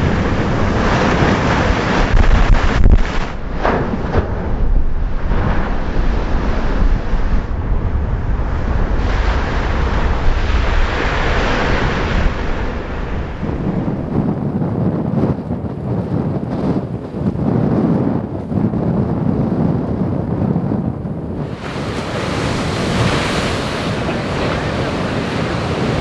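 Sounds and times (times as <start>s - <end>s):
waves crashing against seawall: 0.0s - 7.3s, 21.4s - 26.0s
wind buffeting microphone: 0.0s - 26.0s.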